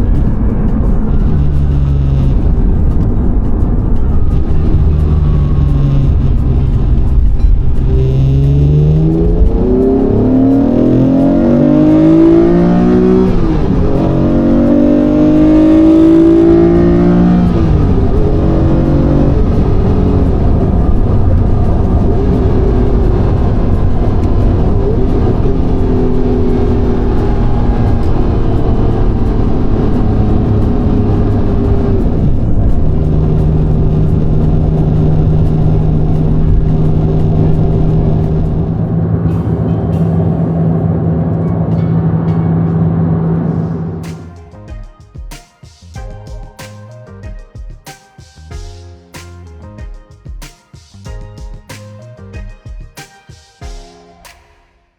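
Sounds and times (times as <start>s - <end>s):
car engine accelerating through gears: 0.0s - 44.2s.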